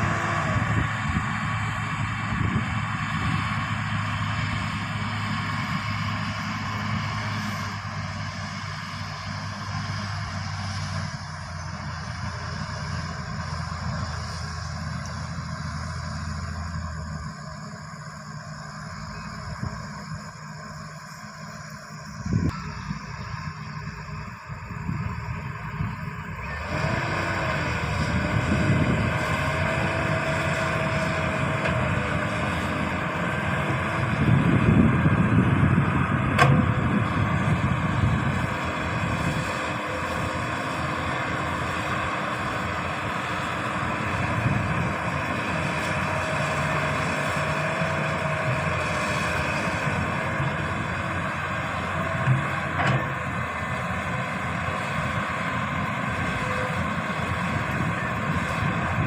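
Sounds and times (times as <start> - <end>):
excavator diesel engine: 0.0 - 59.0
faint wavering whine: 15.0 - 26.7.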